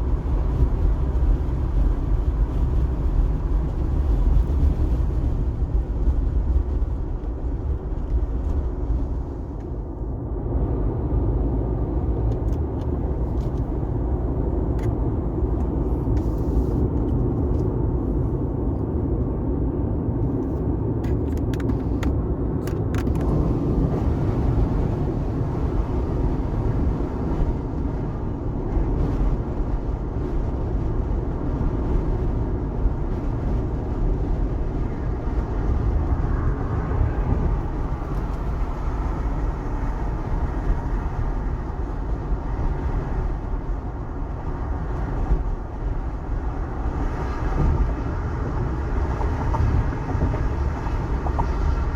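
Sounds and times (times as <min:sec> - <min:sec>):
road rumble: 0:00.0 - 0:51.9.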